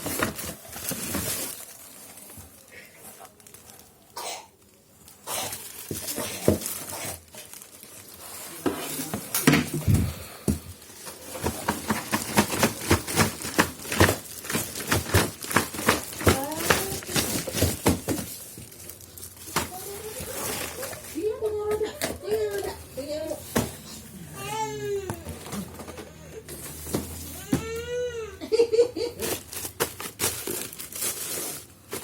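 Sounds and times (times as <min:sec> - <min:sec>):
packaging crinkling: 0:00.0 - 0:09.6, 0:10.7 - 0:23.6, 0:29.2 - 0:32.0
plastic parts clicking and knocking: 0:10.5 - 0:18.8.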